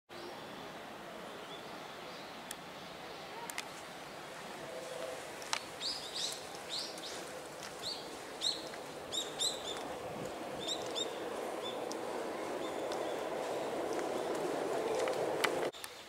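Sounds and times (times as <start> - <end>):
outdoor background noise: 0.1 - 16.0
bird chirping: 5.6 - 15.7.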